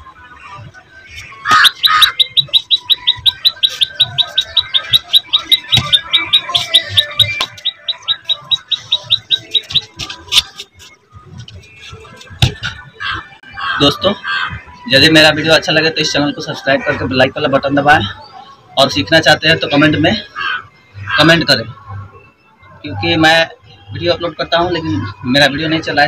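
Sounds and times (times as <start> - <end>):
bird chirping rapidly: 1.3 - 10.2.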